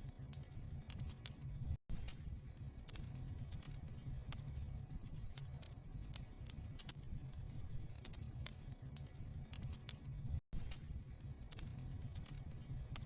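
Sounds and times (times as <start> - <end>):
wood fire crackling: 0.8 - 13.0.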